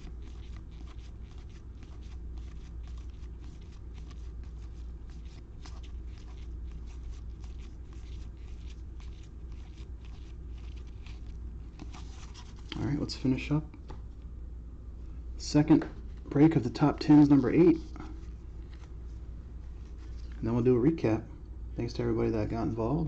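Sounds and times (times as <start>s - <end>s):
low steady hum: 0.0s - 23.0s
cards flipped by hand: 0.1s - 12.8s, 17.2s - 19.0s.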